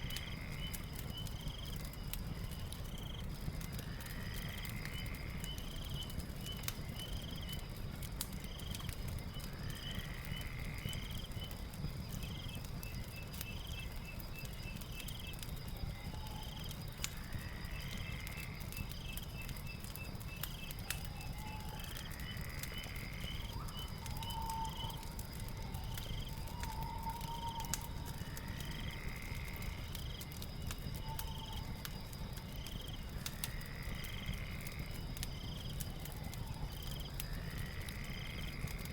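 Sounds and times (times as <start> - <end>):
wood fire crackling: 0.0 - 38.9
high insect drone: 9.2 - 12.5, 13.1 - 38.9.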